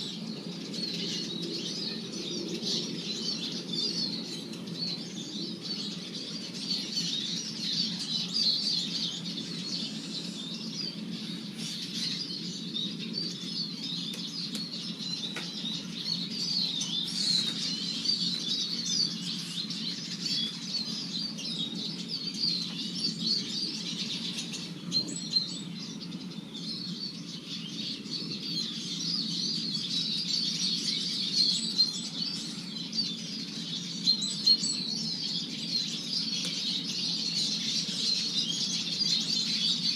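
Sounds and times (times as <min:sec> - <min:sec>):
flock of birds twittering: 0:00.0 - 0:39.9.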